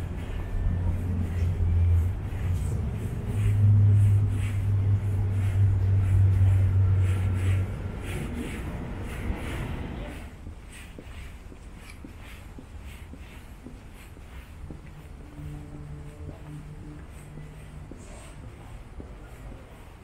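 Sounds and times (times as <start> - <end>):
low vehicle rumble: 0.0 - 10.5.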